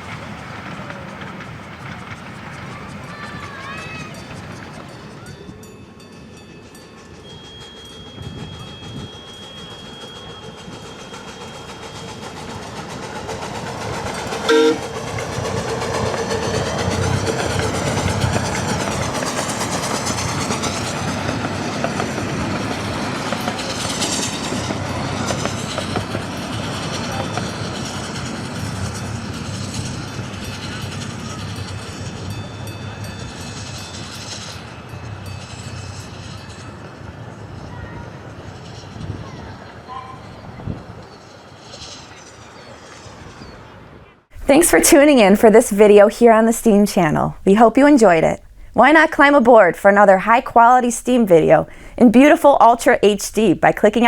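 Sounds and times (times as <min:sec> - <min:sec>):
steam train wheels clicking: 0:00.0 - 0:43.3, 0:44.4 - 0:54.0
train whistle toot: 0:14.3 - 0:14.9.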